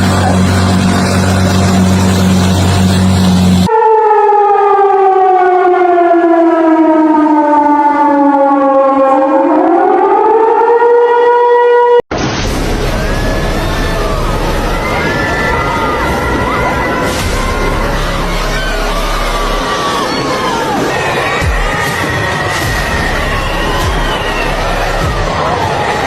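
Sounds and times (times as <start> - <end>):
loud rushing noise with hum: 0.0 - 3.7, 12.1 - 26.0
warning siren wailing: 0.0 - 12.0, 12.6 - 26.0.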